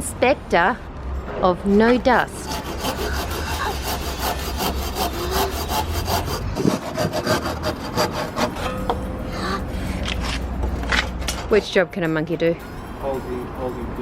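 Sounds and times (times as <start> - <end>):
saw cutting wooden board: 2.2 - 8.9.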